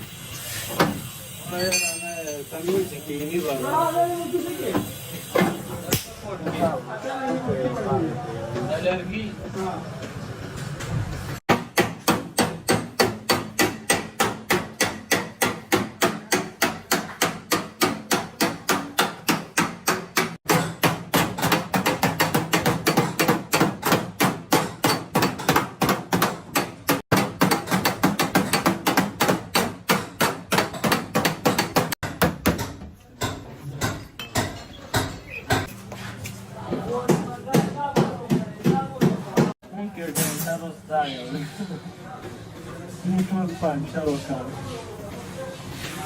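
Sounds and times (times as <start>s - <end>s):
hammer striking sheet metal: 11.5s - 35.8s.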